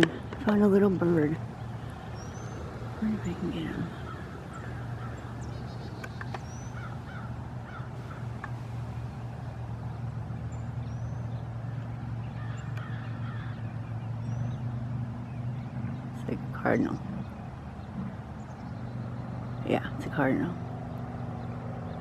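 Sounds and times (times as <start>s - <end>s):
steady low hum: 0.0s - 12.4s
birds chirping: 0.0s - 22.0s.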